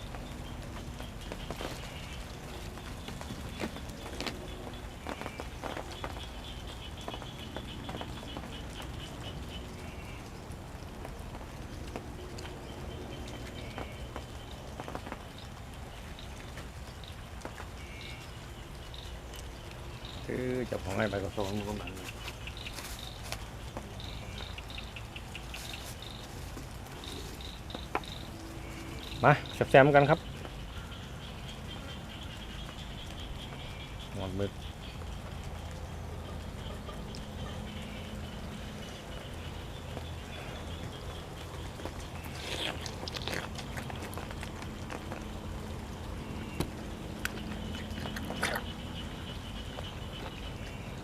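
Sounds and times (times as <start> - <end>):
insects chirping: 0.0 - 51.0
person chewing food: 41.5 - 49.1.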